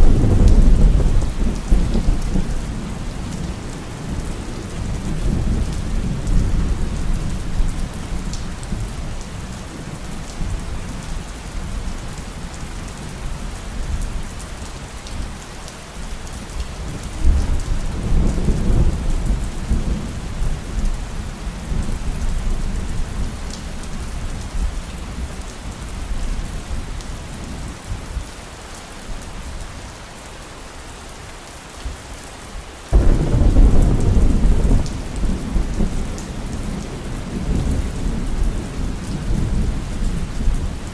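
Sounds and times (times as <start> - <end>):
low rolling thunder: 0.0 - 9.2, 17.2 - 23.5, 32.9 - 40.9
heavy rain falling: 0.0 - 40.9
loud thunderclap: 32.9 - 39.7.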